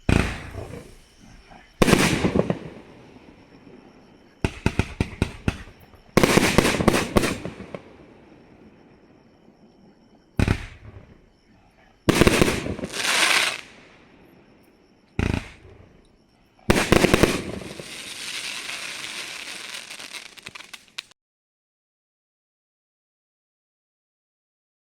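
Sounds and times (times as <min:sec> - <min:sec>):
firework bangs: 0:00.0 - 0:08.2, 0:10.4 - 0:11.2, 0:12.1 - 0:14.0, 0:15.2 - 0:15.9, 0:16.7 - 0:21.1
firework crackling fizz: 0:01.8 - 0:02.9, 0:04.5 - 0:07.8, 0:12.1 - 0:13.9, 0:16.7 - 0:21.2.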